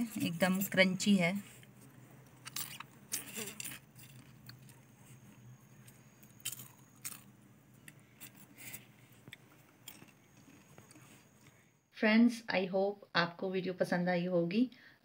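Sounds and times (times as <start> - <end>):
low steady hum: 0.0 - 15.0
popcorn being chewed: 1.6 - 11.7.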